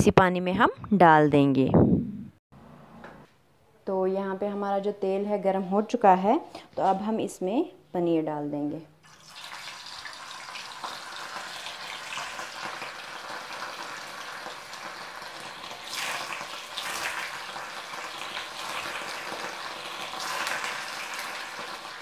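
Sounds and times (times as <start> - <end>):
paneer sizzling in hot oil: 9.0 - 22.0.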